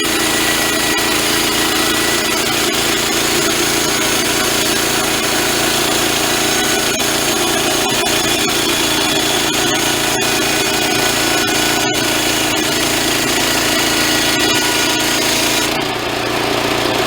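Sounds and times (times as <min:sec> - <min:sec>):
band saw cutting log: 0:00.0 - 0:17.0
mill motor running: 0:00.0 - 0:17.0.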